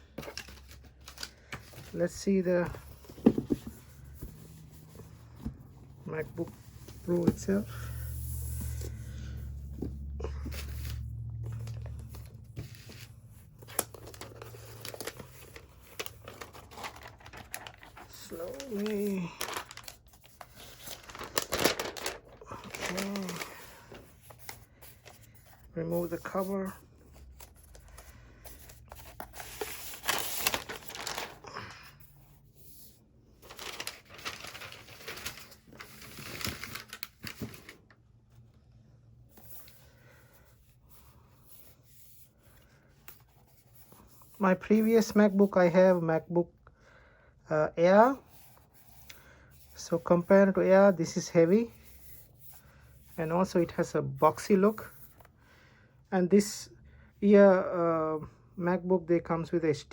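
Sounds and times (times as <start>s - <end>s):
low steady hum: 0.0s - 58.6s
packaging crinkling and tearing: 13.5s - 24.0s, 28.9s - 31.5s, 33.4s - 37.9s.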